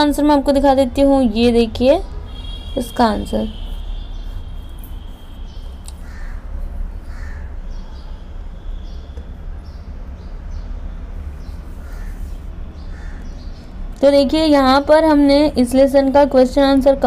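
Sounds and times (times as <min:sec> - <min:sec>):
bird calling: 0:05.4 - 0:09.2, 0:11.5 - 0:13.6.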